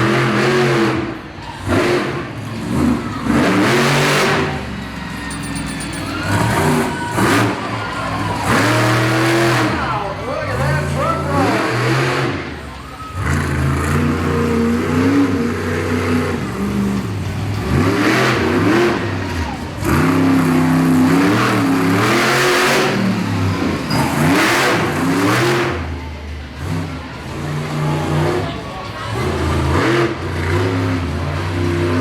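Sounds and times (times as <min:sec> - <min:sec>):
monster truck engine revving: 0:00.0 - 0:32.0.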